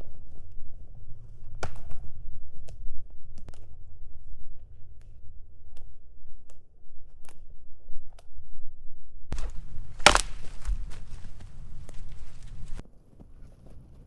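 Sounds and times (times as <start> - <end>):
crunching and rustling in snow: 9.4 - 12.8
loud crack: 9.4 - 12.8
sharp knocks: 9.4 - 12.8.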